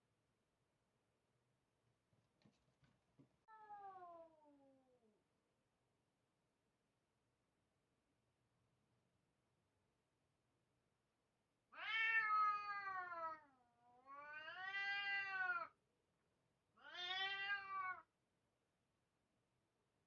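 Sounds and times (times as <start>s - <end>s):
cat meowing: 11.7s - 15.8s, 16.8s - 18.1s.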